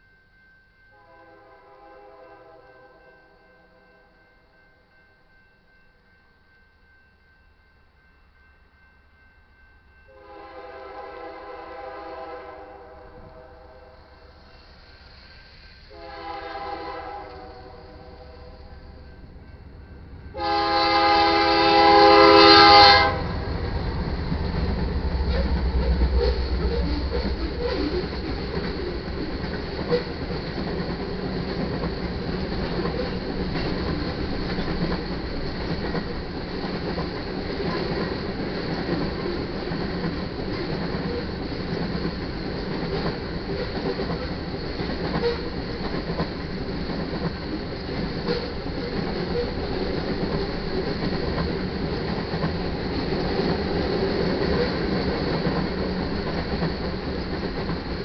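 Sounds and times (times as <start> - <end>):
locomotive horn blast: 1.0 - 3.0, 10.1 - 14.0, 15.9 - 18.7, 20.3 - 23.5
diesel locomotive rumble: 13.9 - 58.0
freight cars clickety-clack: 23.4 - 58.0.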